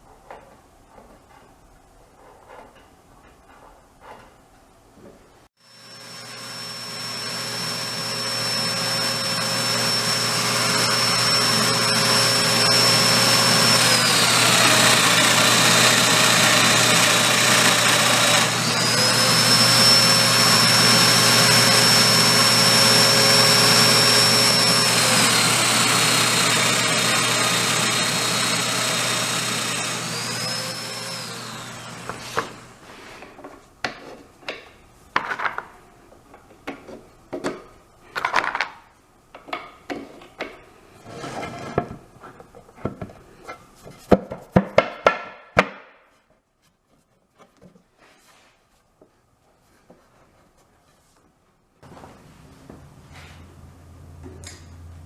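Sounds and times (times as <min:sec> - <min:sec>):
electric power tool whining: 0:05.6 - 0:32.8.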